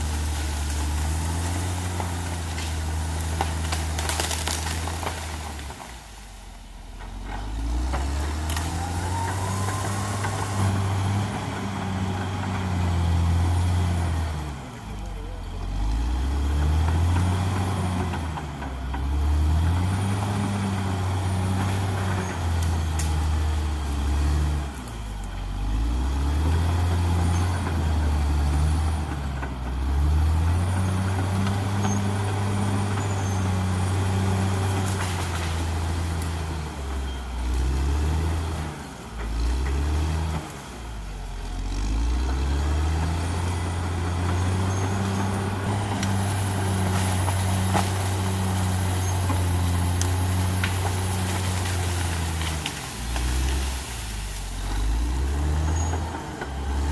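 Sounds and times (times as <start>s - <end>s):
bulldozer diesel engine under load: 0.0s - 56.9s.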